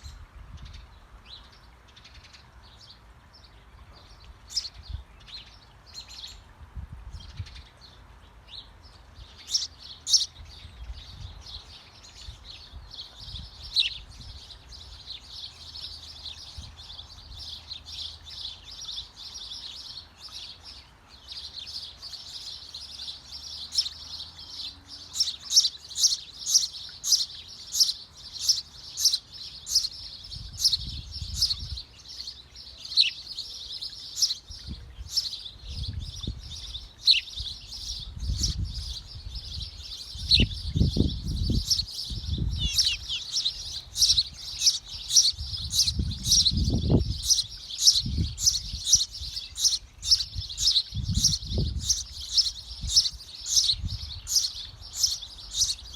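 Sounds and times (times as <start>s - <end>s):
small birds chirping rapidly: 7.2s - 55.9s.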